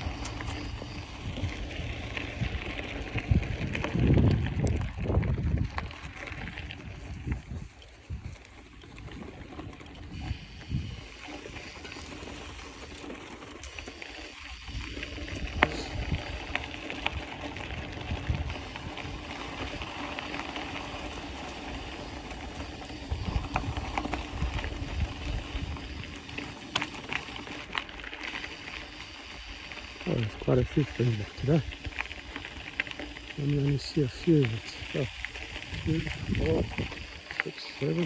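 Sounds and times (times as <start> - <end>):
scattered clicks: 0.0 - 1.5, 9.6 - 38.0
freewheel hub ratcheting: 0.0 - 4.7, 18.2 - 38.0
wind rumble on microphone: 0.0 - 13.0, 13.7 - 26.6, 33.4 - 37.2
bike tyres on dirt trail: 0.0 - 38.0.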